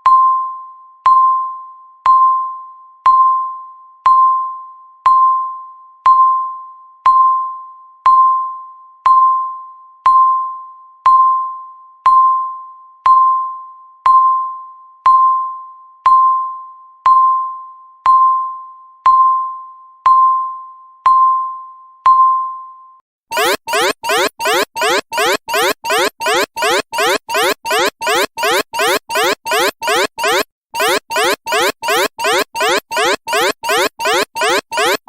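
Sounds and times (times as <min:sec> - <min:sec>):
electronic alarm rising sweeps: 0:23.3 - 0:35.0
electronic timer ding: 0:23.3 - 0:35.0.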